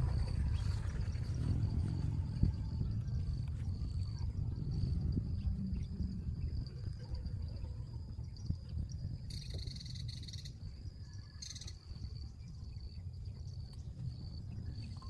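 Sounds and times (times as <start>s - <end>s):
low rumble: 0.0s - 11.1s
high insect trill: 0.0s - 15.0s
loud rasping insect calls: 9.3s - 10.6s, 11.2s - 11.9s.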